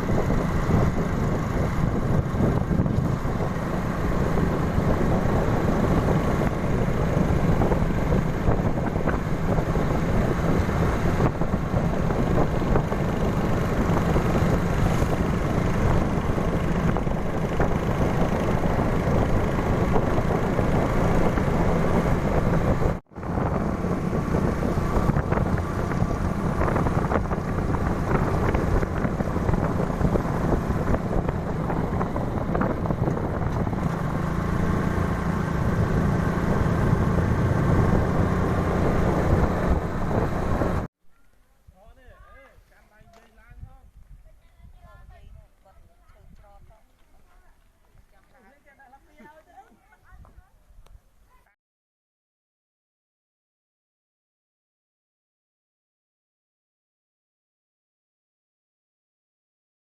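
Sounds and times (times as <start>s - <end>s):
motorbike engine running: 0.0s - 40.9s
wind rushing over microphone: 0.0s - 40.9s, 43.0s - 46.8s.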